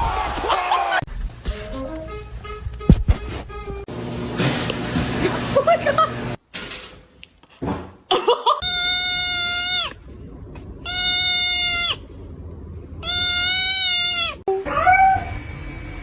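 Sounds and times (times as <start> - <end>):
animal crying: 8.6 - 10.0, 10.8 - 12.1, 13.0 - 15.4.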